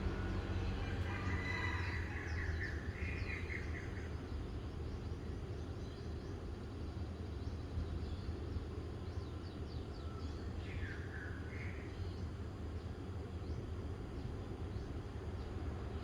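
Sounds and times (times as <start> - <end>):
steady low rumble: 0.0 - 1.2.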